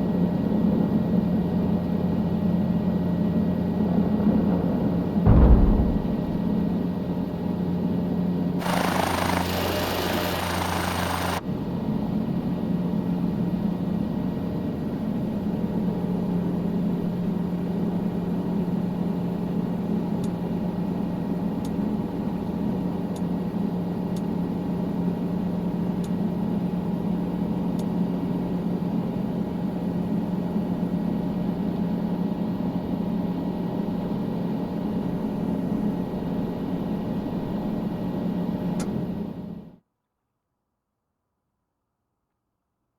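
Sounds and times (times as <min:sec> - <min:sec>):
helicopter engine and rotor drone: 0:07.0 - 0:21.5.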